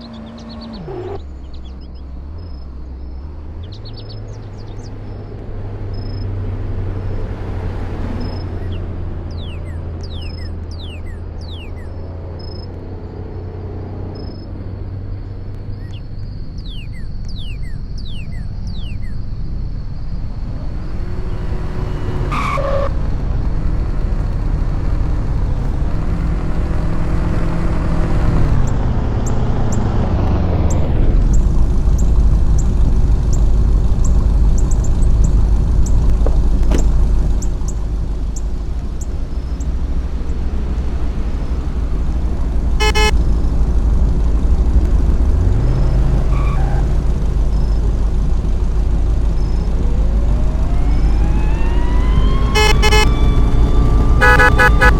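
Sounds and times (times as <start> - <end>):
car engines rumbling: 0.0 - 54.9
car horn toots: 42.8 - 43.2, 52.0 - 54.9.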